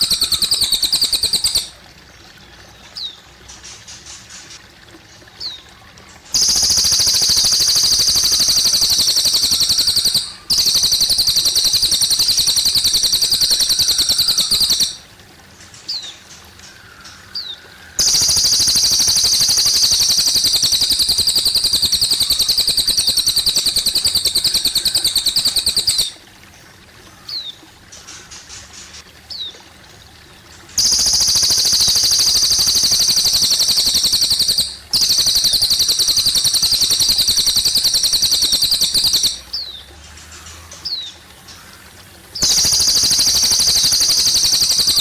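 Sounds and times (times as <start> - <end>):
bird high-pitched trill: 0.0 - 1.8, 6.4 - 15.1, 18.0 - 26.2, 30.8 - 39.8, 42.4 - 45.0
water trickling: 0.0 - 45.0.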